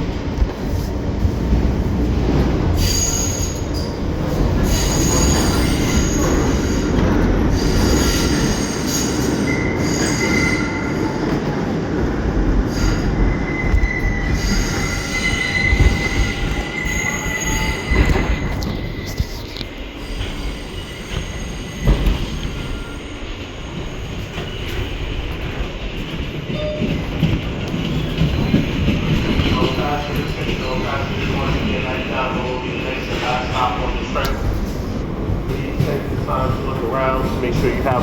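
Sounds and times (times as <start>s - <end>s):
subway train rumbling: 0.0s - 38.0s
steel wheels squealing: 2.8s - 4.0s, 4.6s - 11.2s, 12.7s - 19.2s.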